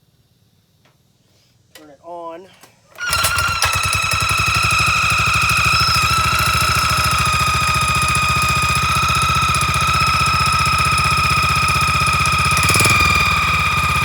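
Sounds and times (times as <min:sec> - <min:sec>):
small engine idling: 0:03.0 - 0:14.0.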